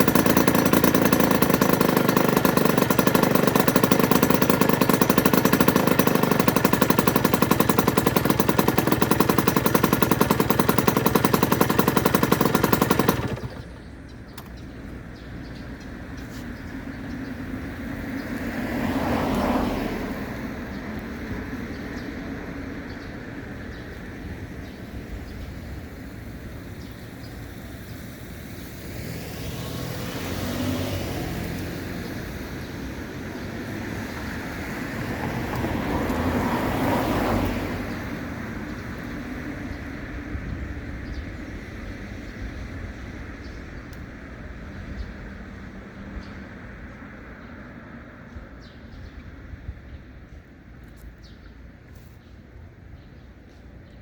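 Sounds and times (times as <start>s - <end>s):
two-stroke engine running: 0.0s - 16.0s, 29.7s - 39.2s.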